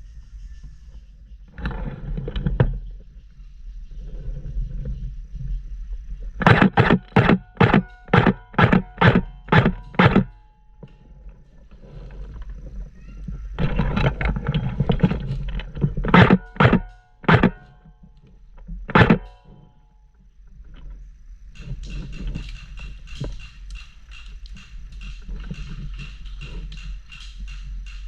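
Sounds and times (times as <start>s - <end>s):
airsoft gun shots: 6.4s - 10.4s, 16.1s - 17.8s, 18.9s - 19.4s.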